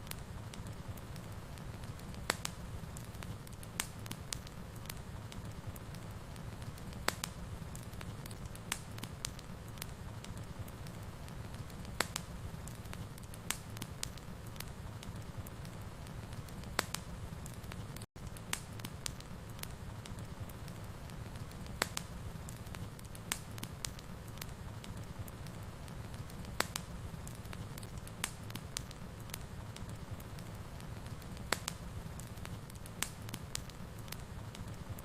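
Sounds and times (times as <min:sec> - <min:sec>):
fireplace fire crackling: 0:00.0 - 0:35.0.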